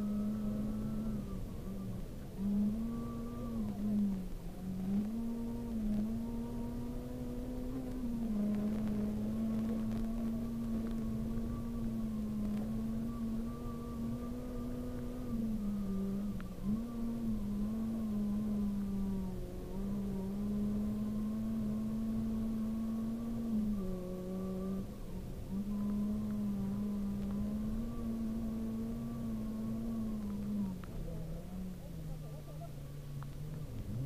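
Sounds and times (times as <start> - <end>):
car engine at high revs: 0.0 - 34.0.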